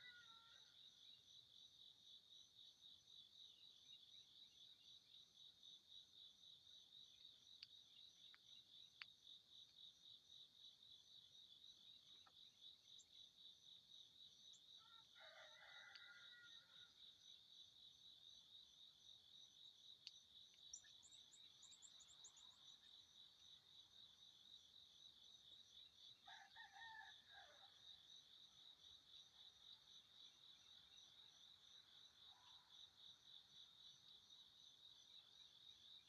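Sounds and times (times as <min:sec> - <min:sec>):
faint rooster crowing: 0:00.0 - 0:00.8, 0:14.8 - 0:17.2, 0:26.2 - 0:28.1
pulsing cricket chorus: 0:00.0 - 0:36.0.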